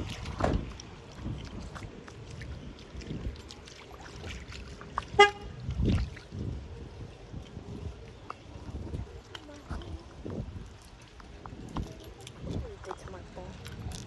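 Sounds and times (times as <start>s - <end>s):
car horn toot: 5.1s - 5.6s.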